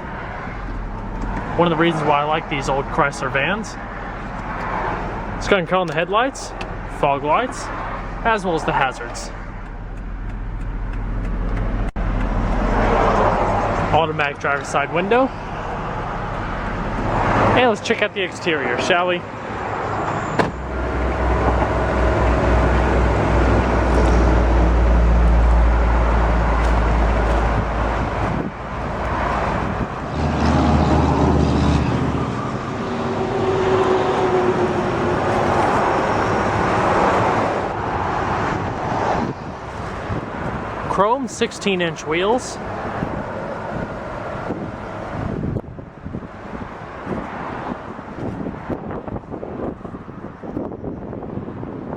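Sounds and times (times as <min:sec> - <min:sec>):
minivan engine idling: 0:00.0 - 0:21.1
wind rumble on microphone: 0:19.4 - 0:41.0, 0:42.6 - 0:51.9.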